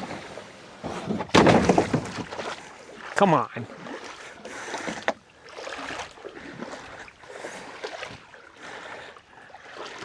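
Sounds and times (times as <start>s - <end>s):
canoe rubbing and sloshing: 0.0s - 10.0s.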